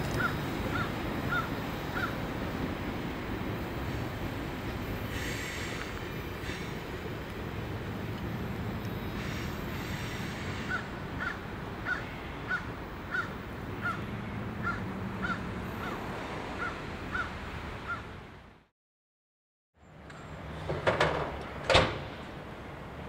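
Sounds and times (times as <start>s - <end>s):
distant freight train rumble: 0.0s - 17.8s.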